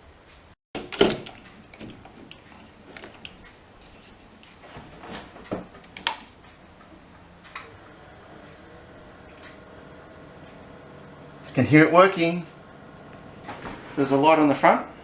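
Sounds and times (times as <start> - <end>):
faint fridge hum: 0.2 - 15.0
sharp clicks and knocks: 0.8 - 7.7.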